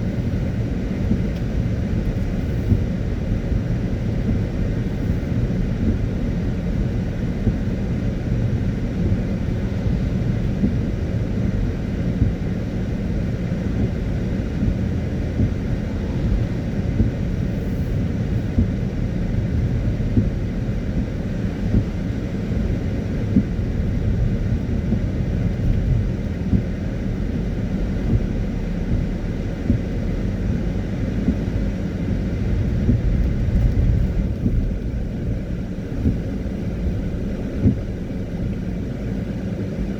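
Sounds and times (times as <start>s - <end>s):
car driving on wet road: 0.0s - 39.9s
hiss of wet road surface: 4.1s - 5.6s, 12.8s - 19.7s.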